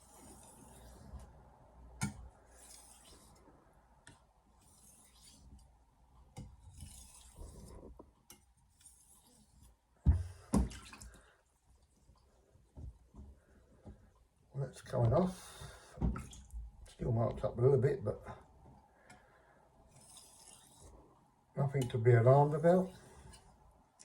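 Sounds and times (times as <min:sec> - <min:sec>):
knife scraping on whetstone: 0:19.9 - 0:20.9.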